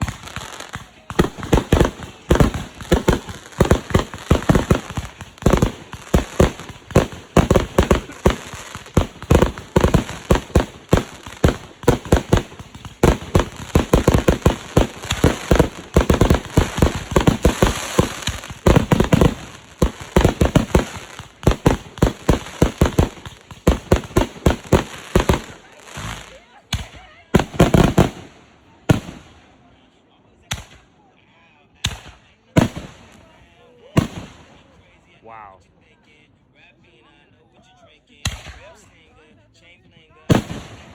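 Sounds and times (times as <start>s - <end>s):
fireworks banging rapidly: 0.0s - 29.3s, 31.8s - 33.4s, 34.0s - 34.6s, 40.3s - 40.9s.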